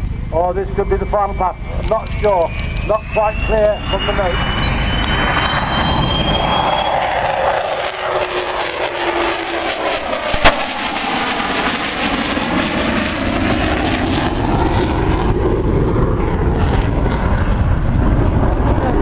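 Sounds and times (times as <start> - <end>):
jet engines roaring: 0.0 - 19.0
sharp knock: 10.3 - 10.9.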